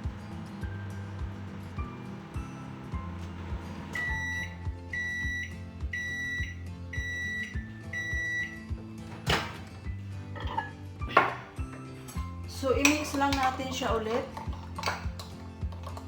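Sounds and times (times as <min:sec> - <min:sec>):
microwave oven beeping: 0:00.0 - 0:09.0
music with steady beat: 0:00.0 - 0:10.3.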